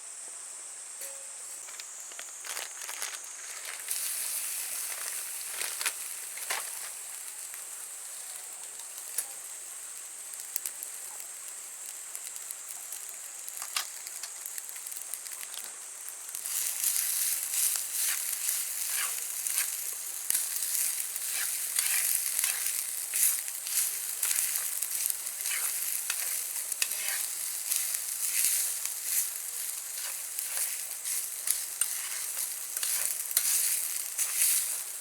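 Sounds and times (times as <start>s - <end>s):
food sizzling: 0.7s - 35.0s
fire popping and crackling: 1.6s - 35.0s.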